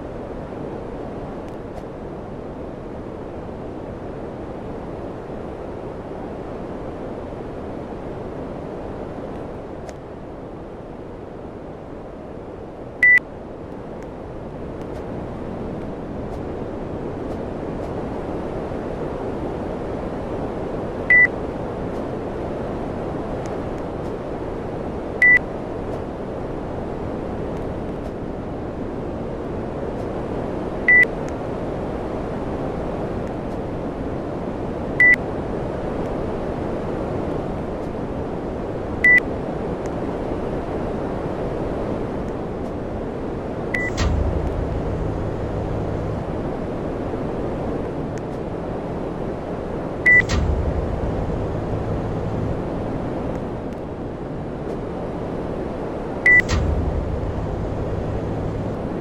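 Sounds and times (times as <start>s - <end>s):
air conditioner airflow: 10.4s - 59.0s
short beeps: 21.1s - 21.3s, 43.8s - 46.2s, 50.1s - 52.5s, 56.3s - 58.7s
low hum: 41.8s - 59.0s.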